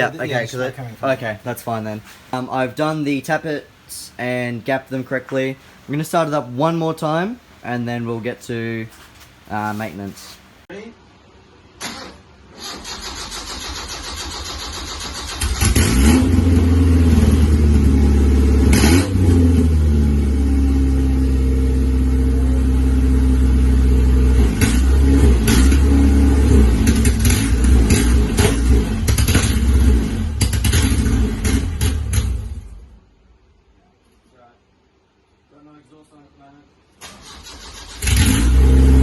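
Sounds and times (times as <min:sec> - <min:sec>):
engine revving without exhaust: 0:12.0 - 0:32.8, 0:37.0 - 0:39.0.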